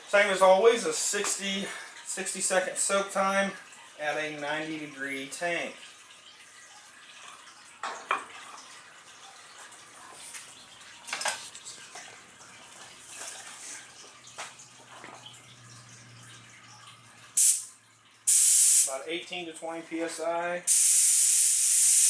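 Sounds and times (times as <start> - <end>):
spray gun hiss: 17.4 - 17.7, 18.3 - 18.9, 20.7 - 22.0.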